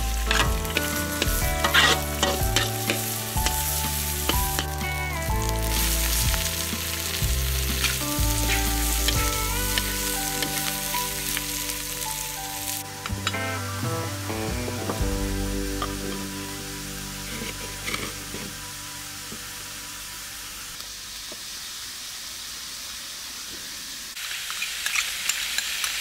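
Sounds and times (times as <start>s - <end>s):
food sizzling in hot oil: 0.0s - 13.6s, 14.8s - 26.0s
metal spatula scraping pan: 0.3s - 3.5s, 17.3s - 18.6s.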